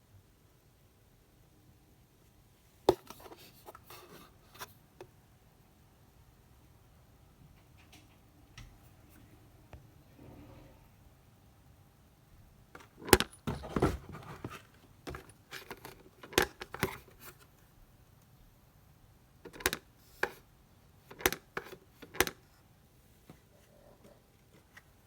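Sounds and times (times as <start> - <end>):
hard objects knocking and rattling: 12.8 - 17.0.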